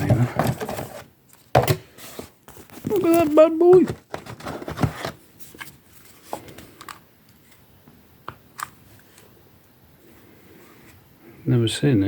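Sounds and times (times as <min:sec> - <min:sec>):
packaging rustle: 0:02.1 - 0:06.8.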